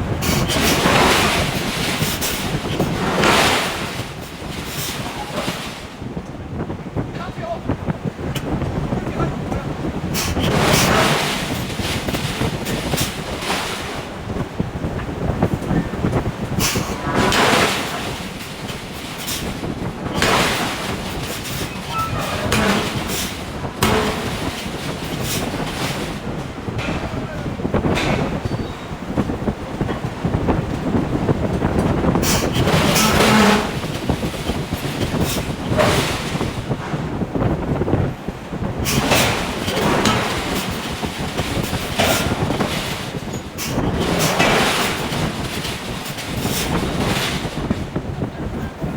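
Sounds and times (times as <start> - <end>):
hydraulic forging hammer knocking: 0.0 - 48.4
machinery rumble: 0.0 - 48.9
forging hammer hissing and crashing: 0.2 - 6.1, 16.5 - 29.2.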